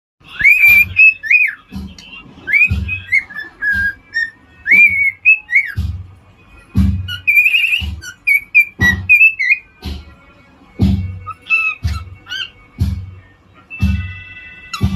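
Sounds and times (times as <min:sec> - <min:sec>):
cockatiel whistling: 0:00.3 - 0:05.8, 0:07.0 - 0:09.7, 0:11.2 - 0:12.6, 0:13.7 - 0:14.9.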